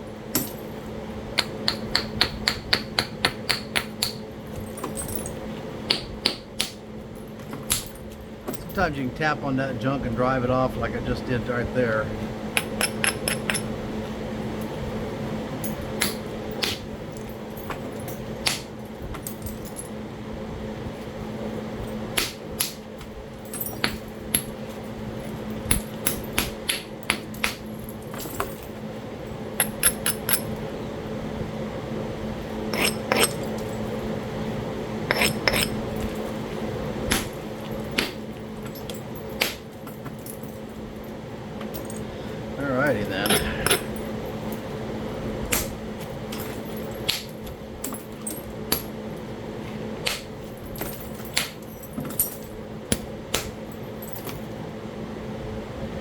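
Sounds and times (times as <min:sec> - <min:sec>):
steady low hum: 0:00.0 - 0:56.0
tool striking stone: 0:01.4 - 0:04.2, 0:35.1 - 0:35.8.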